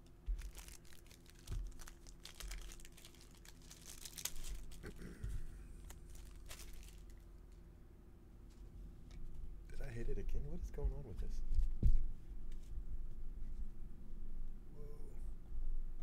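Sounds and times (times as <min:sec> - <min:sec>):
faint steady hum: 0:00.0 - 0:16.0
plastic packaging crinkling: 0:00.2 - 0:05.0, 0:05.8 - 0:07.6.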